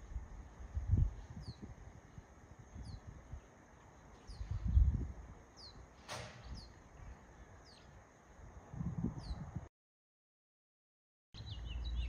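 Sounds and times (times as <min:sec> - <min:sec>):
low rumbles on microphone: 0:00.0 - 0:03.5, 0:04.3 - 0:05.4, 0:08.5 - 0:09.7
small bird chirping: 0:01.2 - 0:08.0, 0:09.2 - 0:09.6, 0:11.4 - 0:12.0.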